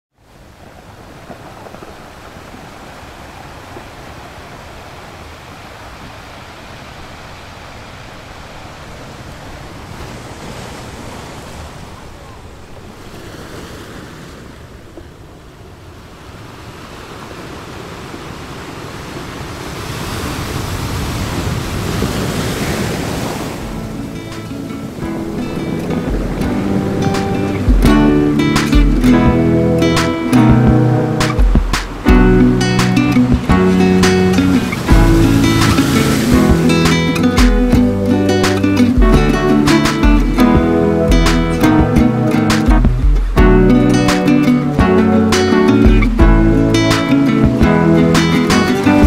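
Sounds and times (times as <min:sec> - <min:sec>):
ocean surf breaking: 0:00.1 - 0:49.0
music: 0:23.7 - 0:49.0.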